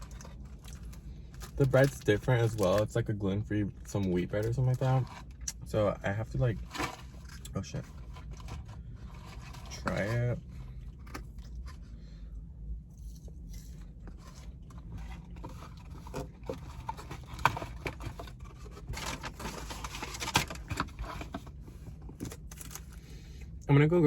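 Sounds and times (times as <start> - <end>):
rustling and scraping: 3.9 - 5.5, 6.4 - 12.0, 12.9 - 23.3.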